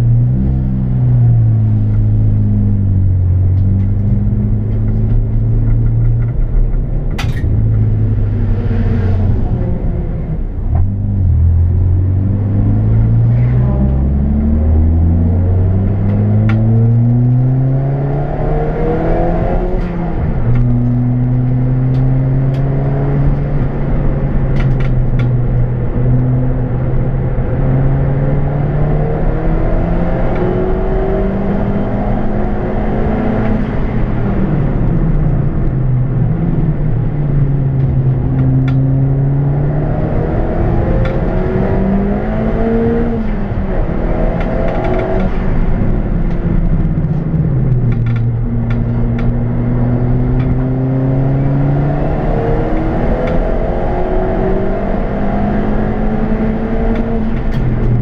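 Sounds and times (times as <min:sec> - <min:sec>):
car engine accelerating: 0:00.0 - 0:58.0
sharp clicks and knocks: 0:03.5 - 0:08.0, 0:24.4 - 0:26.3, 0:44.2 - 0:49.5, 0:56.8 - 0:58.0.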